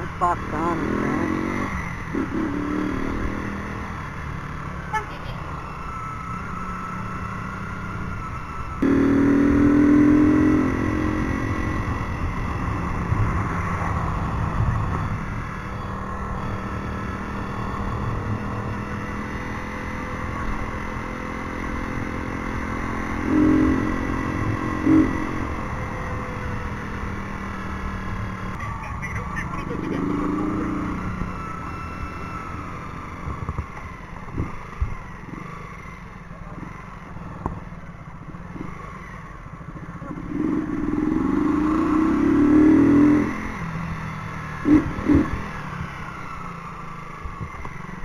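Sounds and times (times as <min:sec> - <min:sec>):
motorcycle engine running: 0:00.0 - 0:48.0
loud high-pitched tone: 0:22.9 - 0:26.0.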